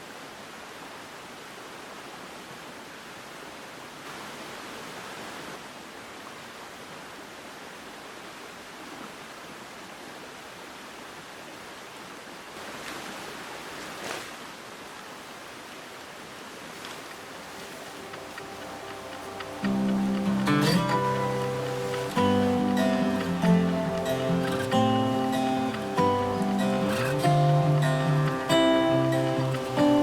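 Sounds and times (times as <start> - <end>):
rain falling: 0.0 - 30.0.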